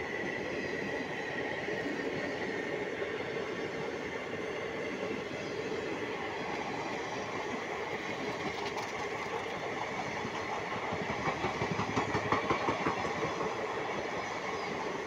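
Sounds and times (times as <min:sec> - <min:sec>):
train coaches rolling on rails: 0:00.0 - 0:15.0
train wheels knocking: 0:08.3 - 0:14.2.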